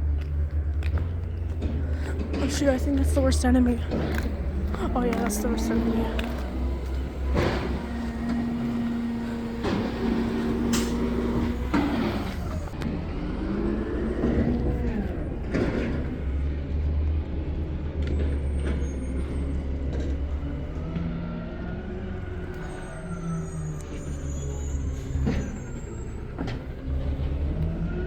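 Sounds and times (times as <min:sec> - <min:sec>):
diesel truck engine running: 0:00.0 - 0:28.0
engine whine: 0:00.0 - 0:28.0
air brake hisses: 0:06.6 - 0:12.7.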